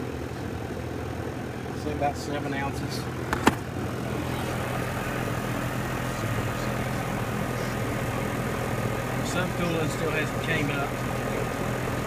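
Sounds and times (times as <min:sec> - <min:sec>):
compressor low hum: 0:00.0 - 0:12.0
fan rushing: 0:03.1 - 0:12.0.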